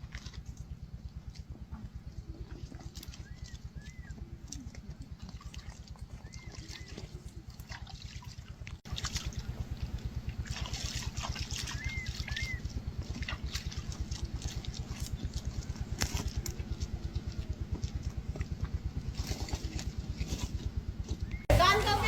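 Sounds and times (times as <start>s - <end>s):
small engine running: 8.9s - 22.0s
bird chirps: 11.7s - 12.7s.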